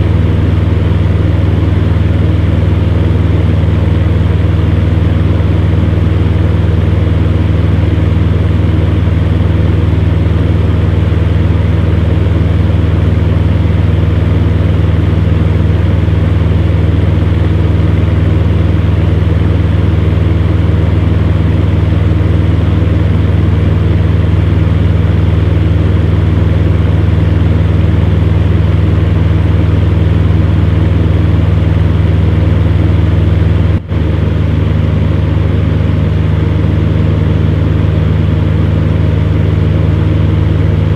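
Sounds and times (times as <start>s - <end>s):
electric fan heater running: 0.0s - 40.9s.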